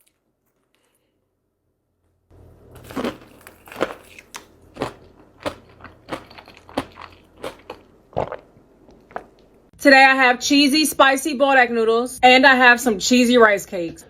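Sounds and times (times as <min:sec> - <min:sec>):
crunchy chewing: 0:02.4 - 0:09.5.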